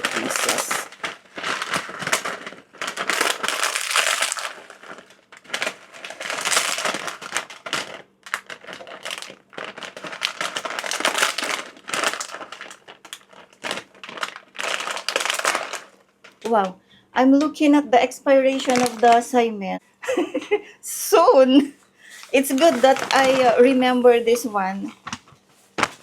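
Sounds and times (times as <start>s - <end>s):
dry noodles crunching: 0.0s - 16.6s, 22.2s - 23.7s
plastic packet crinkling: 0.0s - 16.7s, 18.4s - 19.5s, 22.1s - 25.2s.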